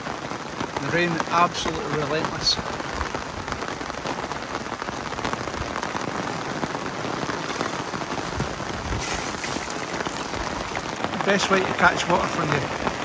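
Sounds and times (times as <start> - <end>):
raindrops striking close by: 0.0 - 13.0
torrential rain: 0.0 - 13.0.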